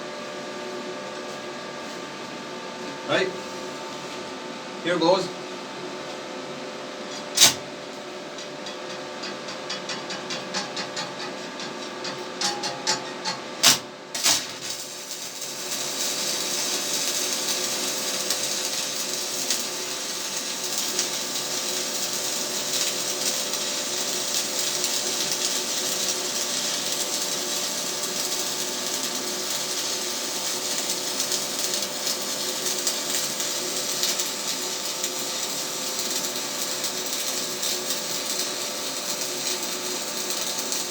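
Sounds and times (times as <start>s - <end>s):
welding arc sizzling crackle: 6.9s - 40.9s
welding rod scratching and tapping: 8.3s - 15.4s, 29.2s - 40.9s.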